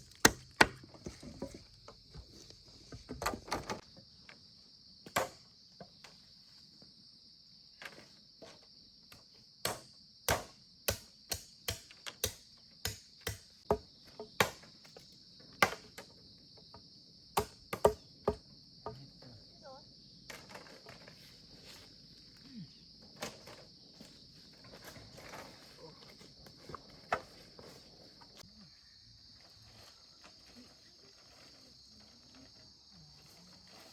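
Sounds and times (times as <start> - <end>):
insects chirring: 0.0 - 33.9
sharp irregular knocks: 0.1 - 1.0.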